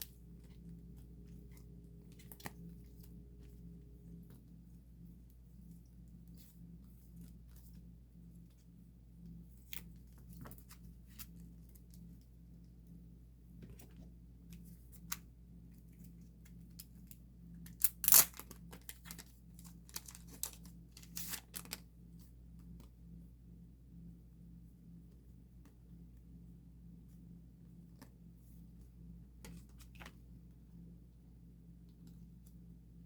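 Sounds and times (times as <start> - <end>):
low steady hum: 0.0 - 33.0
plastic sleeves crinkling: 16.6 - 21.8
plastic tearing: 17.8 - 21.8.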